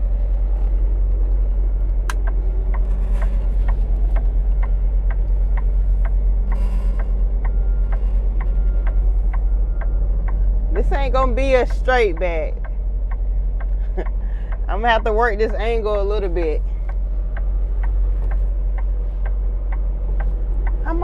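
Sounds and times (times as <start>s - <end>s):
diesel truck engine idling: 0.0s - 21.0s
steady clicking: 16.5s - 20.9s.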